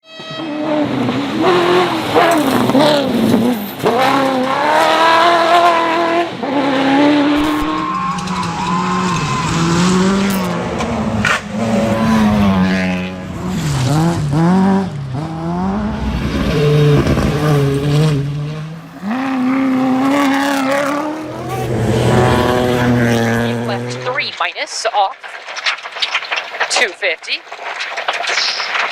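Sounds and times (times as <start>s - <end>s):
rally car engines revving: 0.3s - 24.3s
sharp cracks: 24.1s - 28.9s.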